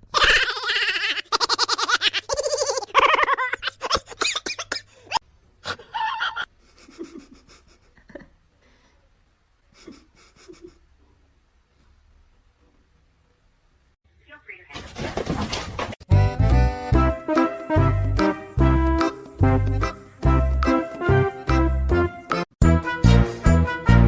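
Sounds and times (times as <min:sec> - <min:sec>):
person laughing loudly: 0:00.1 - 0:08.4, 0:09.8 - 0:10.8.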